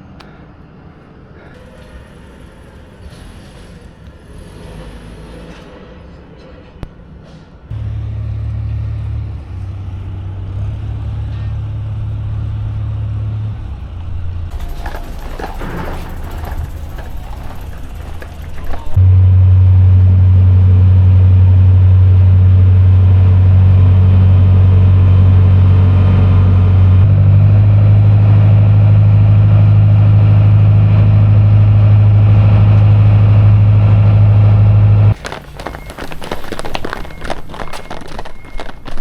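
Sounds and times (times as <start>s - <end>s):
loud low drone: 7.7s - 14.5s, 19.0s - 35.2s
running footsteps: 14.5s - 19.0s, 35.0s - 39.0s.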